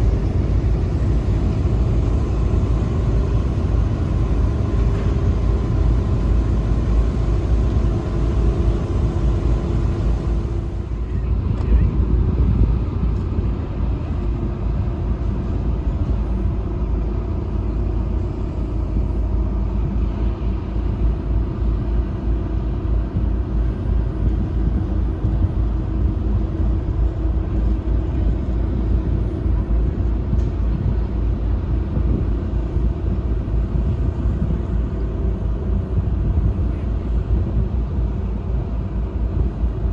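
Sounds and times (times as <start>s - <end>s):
ship engine rumbling: 0.0s - 39.9s.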